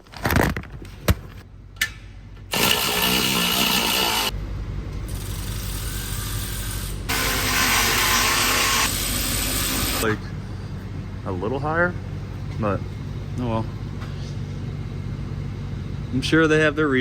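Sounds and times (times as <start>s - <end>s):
power tool running: 2.5s - 4.4s, 5.1s - 10.2s.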